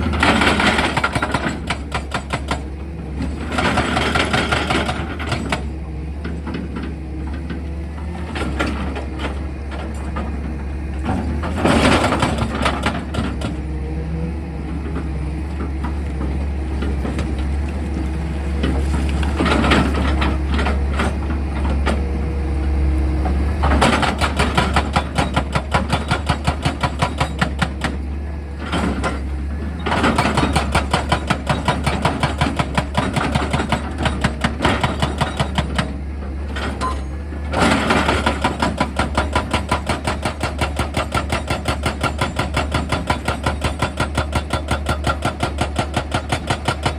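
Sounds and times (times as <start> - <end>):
hydraulic drill hammering rock: 0.0 - 2.8, 3.4 - 5.7, 23.6 - 28.0, 28.8 - 36.0, 36.7 - 46.9
excavator engine running: 0.0 - 46.9.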